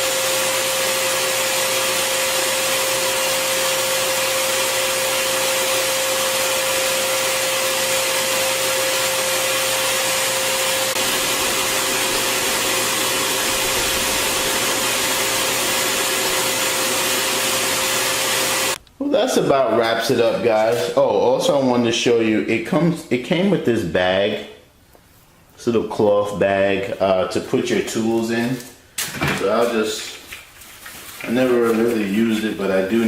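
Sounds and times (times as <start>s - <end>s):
vacuum blower running: 0.0s - 18.8s.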